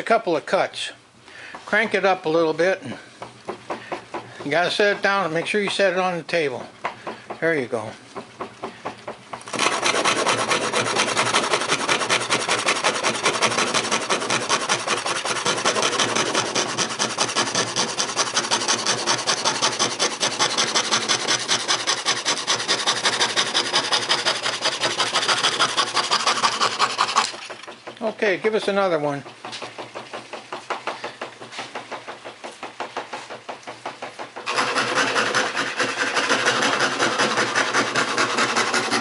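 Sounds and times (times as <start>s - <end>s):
scroll saw blade rasping through wood: 9.4s - 31.8s, 34.0s - 39.0s.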